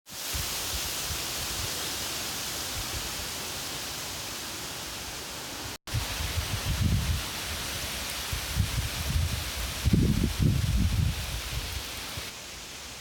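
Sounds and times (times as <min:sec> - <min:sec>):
wind rushing through foliage: 0:00.1 - 0:13.0
wind gusts buffeting microphone: 0:05.9 - 0:07.3, 0:08.3 - 0:12.3.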